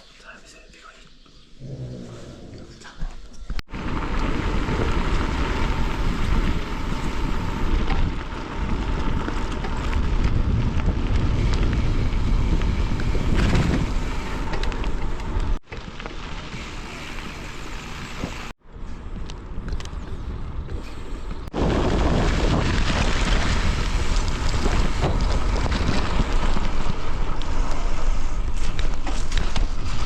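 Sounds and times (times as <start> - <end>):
wind buffeting microphone: 3.7 - 15.6.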